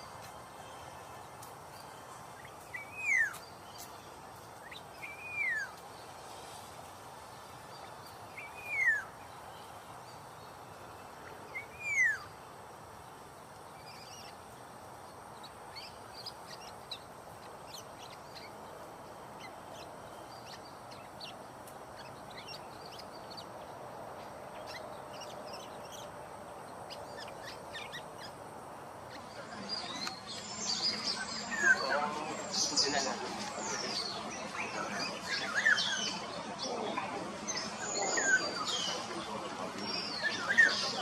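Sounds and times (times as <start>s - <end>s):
background hiss: 0.0s - 41.0s
high bird chirps: 1.8s - 4.0s.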